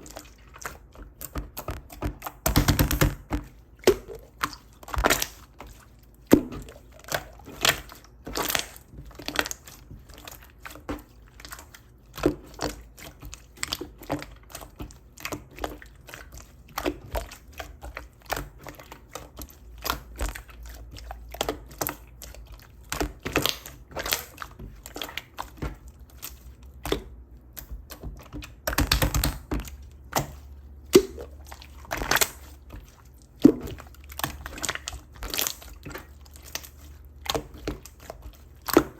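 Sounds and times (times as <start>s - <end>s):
slime clicking and popping: 26.8s - 32.4s.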